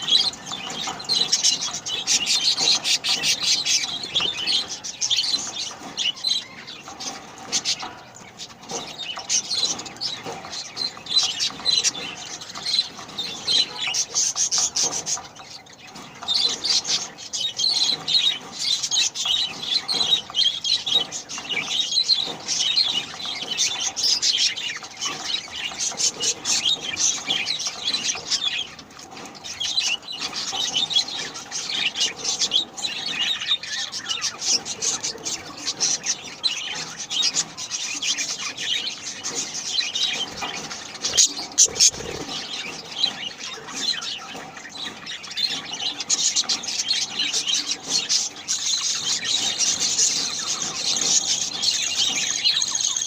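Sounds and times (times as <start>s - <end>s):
bird chicks begging chirps: 0.0s - 53.0s.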